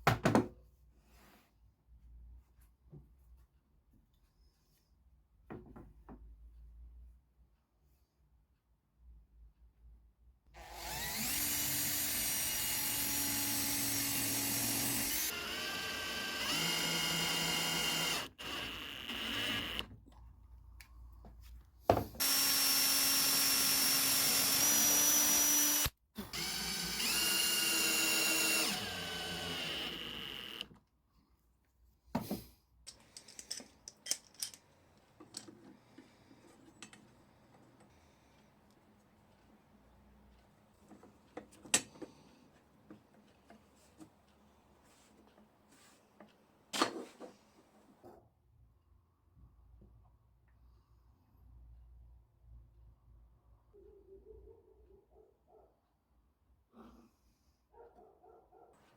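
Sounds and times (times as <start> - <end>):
power drill running: 10.6 - 19.9, 22.2 - 30.7
handling clicks and knocks: 32.9 - 35.8.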